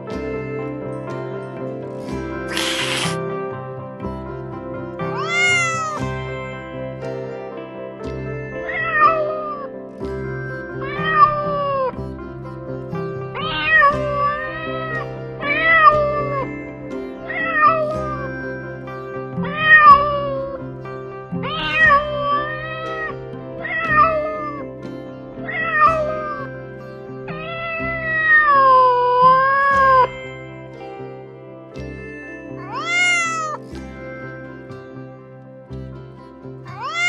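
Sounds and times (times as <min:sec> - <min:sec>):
soft background music: 0:00.0 - 0:37.0
cat meowing: 0:02.5 - 0:03.2, 0:05.2 - 0:06.0, 0:21.5 - 0:24.6, 0:32.7 - 0:33.6, 0:36.8 - 0:37.0.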